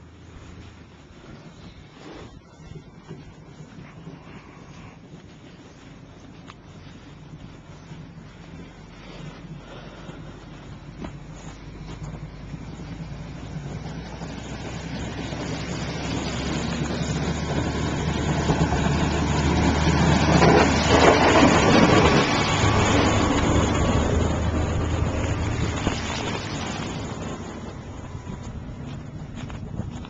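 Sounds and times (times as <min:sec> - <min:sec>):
motor vehicle driving past: 0:10.9 - 0:30.0.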